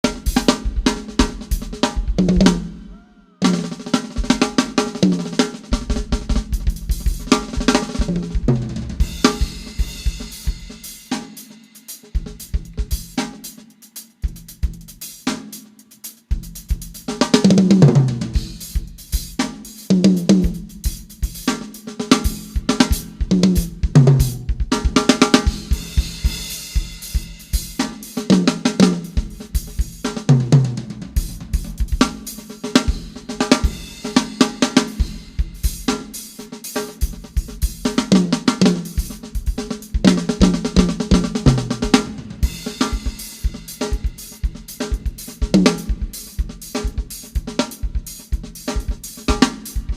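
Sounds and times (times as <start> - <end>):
drum kit playing: 0.0 - 49.9
pitched drum fills: 0.0 - 49.9.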